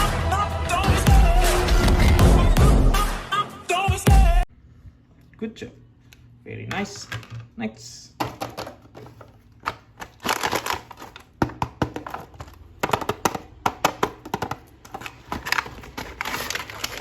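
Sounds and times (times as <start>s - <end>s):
plastic packaging crinkling: 8.4s - 13.1s, 14.0s - 17.0s.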